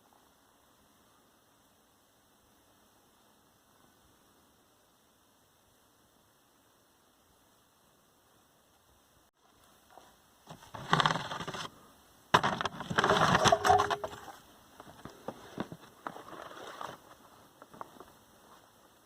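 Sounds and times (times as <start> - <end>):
rustling and scraping: 9.4 - 11.8, 12.4 - 18.8.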